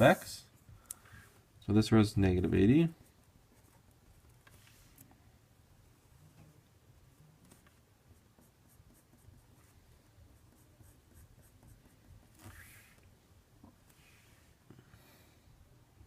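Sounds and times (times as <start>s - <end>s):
pen strokes on paper: 7.5s - 13.0s.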